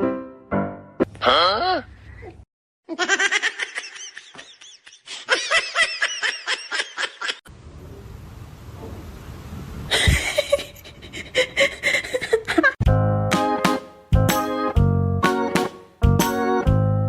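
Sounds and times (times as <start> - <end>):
person laughing: 1.2 - 7.4, 9.9 - 12.8.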